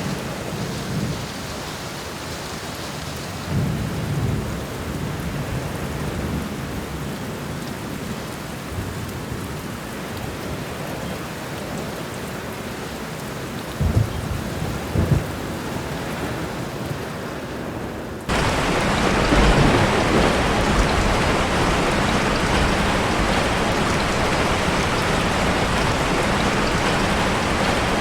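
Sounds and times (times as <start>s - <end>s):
heavy rain falling: 0.0s - 28.0s
thunder rumbling: 13.8s - 16.5s, 18.3s - 28.0s.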